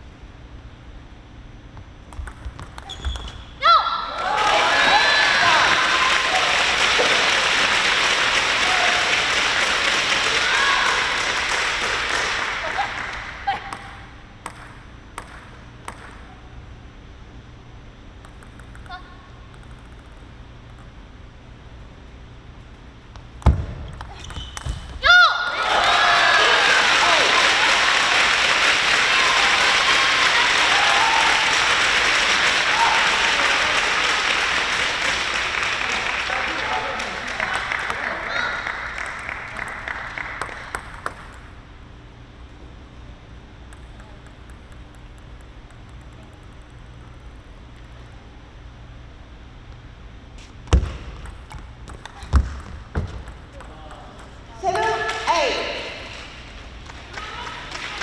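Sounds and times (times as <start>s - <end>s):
spectators applauding: 4.1s - 13.4s, 25.5s - 41.2s, 54.9s - 58.0s.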